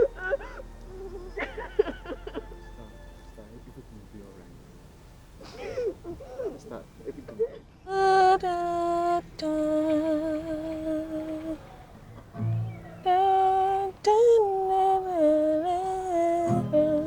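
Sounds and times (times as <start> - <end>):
woman humming: 0.0 - 2.5, 7.9 - 11.8, 13.0 - 17.0.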